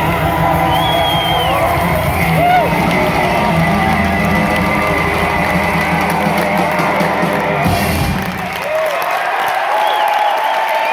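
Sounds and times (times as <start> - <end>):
crowd cheering and whooping: 0.0 - 10.9.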